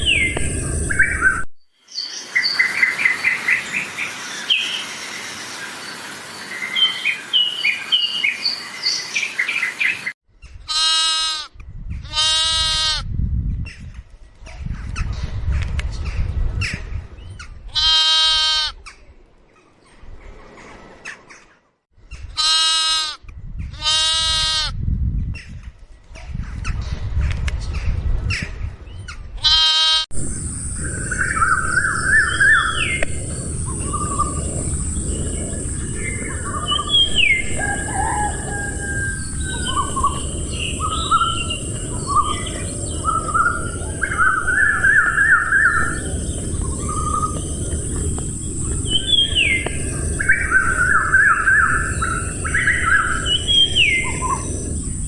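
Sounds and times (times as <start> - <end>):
birds chirping: 0.0 - 10.2, 30.2 - 55.0
goat bleating: 10.7 - 11.5, 12.1 - 13.0, 17.8 - 18.8, 22.4 - 23.2, 23.8 - 24.7, 29.4 - 30.0.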